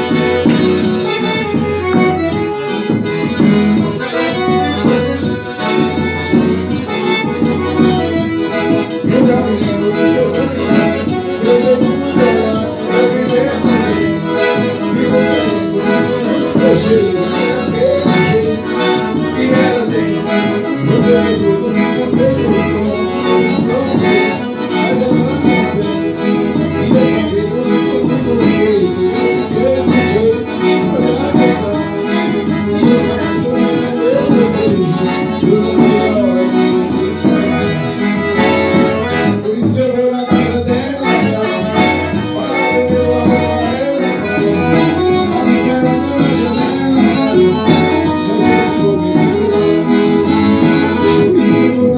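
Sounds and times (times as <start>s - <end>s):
accordion melody: 0.0s - 51.9s
percussion beat: 0.0s - 51.9s.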